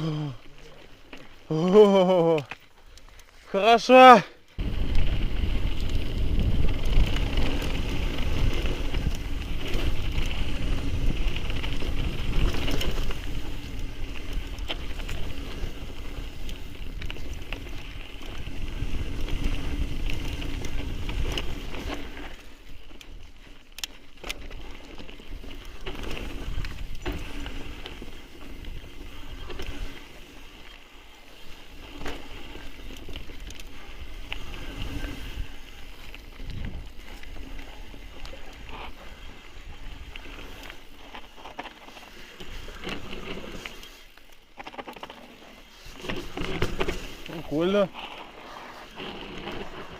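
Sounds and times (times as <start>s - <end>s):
bike tyre noise: 0.0s - 49.9s
wind buffeting microphone: 4.6s - 22.2s, 32.7s - 40.7s.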